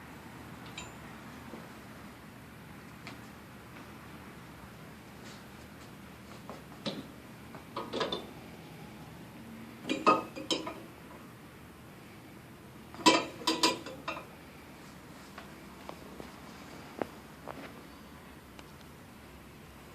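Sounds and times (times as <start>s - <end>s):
metal stand parts clanking: 13.0s - 14.3s.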